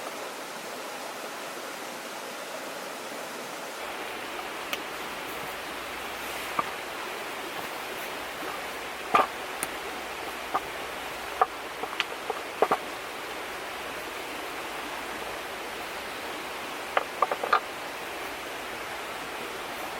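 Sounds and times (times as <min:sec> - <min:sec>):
river rushing: 0:00.0 - 0:19.9
sharp clicks and knocks: 0:08.4 - 0:13.0, 0:16.9 - 0:17.7.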